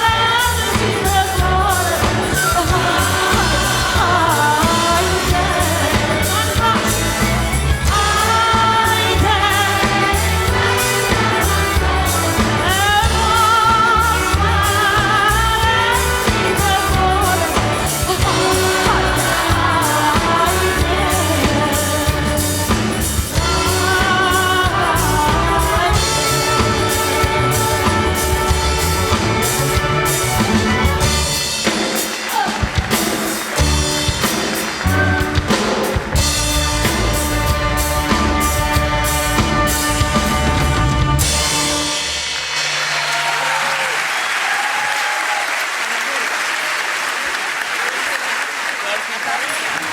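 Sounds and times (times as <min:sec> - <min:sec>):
woman singing with vibrato: 0:00.0 - 0:30.8
symphony orchestra and choir: 0:00.0 - 0:43.6.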